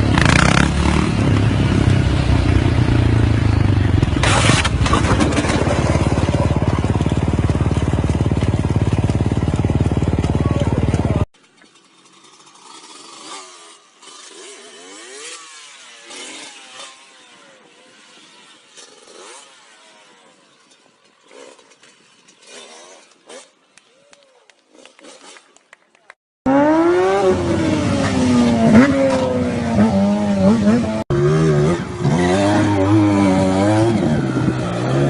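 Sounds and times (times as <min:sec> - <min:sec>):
motorcycle engine running: 0:00.0 - 0:11.3.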